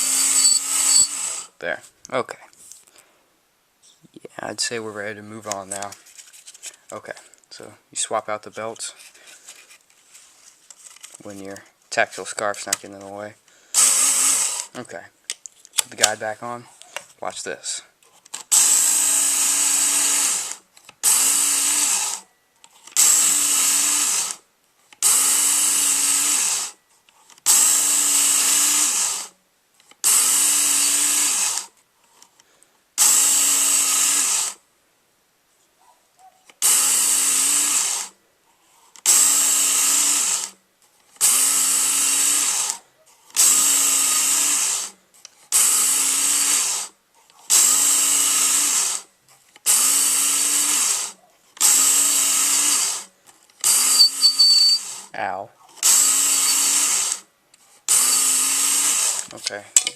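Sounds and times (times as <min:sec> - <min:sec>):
belt knife sharpener grinding: 0:00.0 - 0:01.5, 0:53.6 - 0:55.0, 0:55.8 - 0:57.0, 0:58.0 - 0:59.9.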